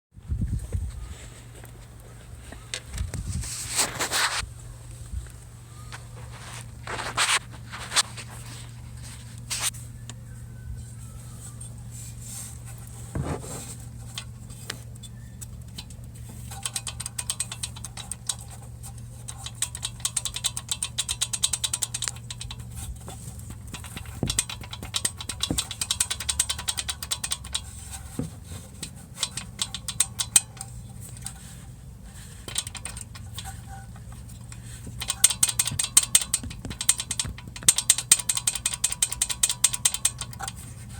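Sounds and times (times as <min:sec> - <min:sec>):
metallic rattle from turbocharger: 0:11.4 - 0:40.9.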